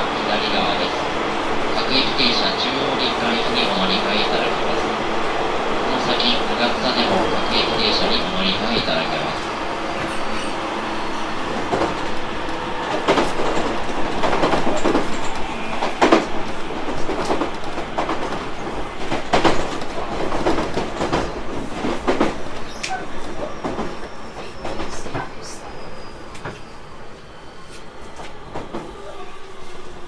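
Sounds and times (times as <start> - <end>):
train rolling noise: 0.0 - 30.0.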